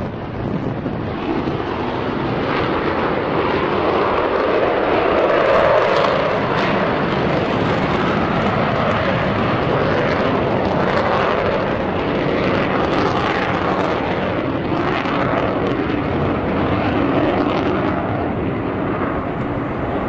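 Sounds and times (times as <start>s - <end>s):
jet bomber flying past: 0.0s - 20.0s.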